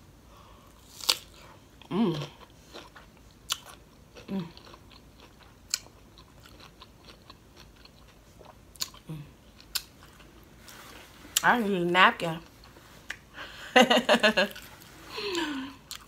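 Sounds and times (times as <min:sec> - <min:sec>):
crunchy chewing of cucumber: 0:00.8 - 0:11.4, 0:14.4 - 0:16.0.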